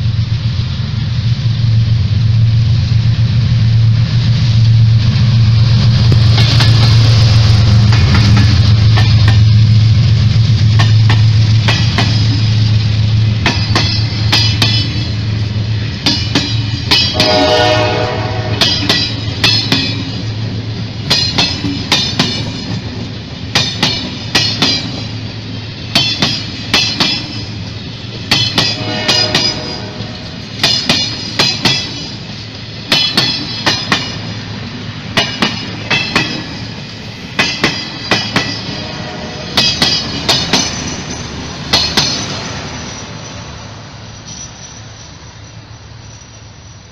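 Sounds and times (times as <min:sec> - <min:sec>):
train wheels clacking over rail joints: 0:06.0 - 0:34.4, 0:35.1 - 0:43.1
train horn: 0:17.0 - 0:19.2, 0:28.6 - 0:30.6, 0:38.4 - 0:40.0.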